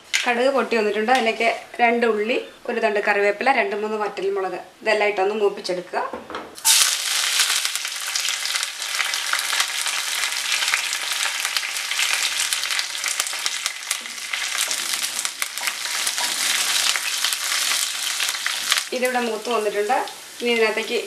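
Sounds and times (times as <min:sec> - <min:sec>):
food sizzling in hot oil: 0:06.6 - 0:21.0.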